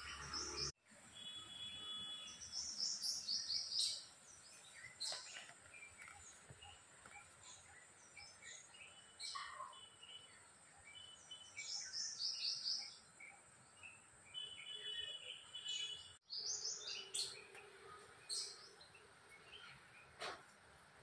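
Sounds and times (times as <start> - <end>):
small birds chirping and trilling: 0.0 - 20.6.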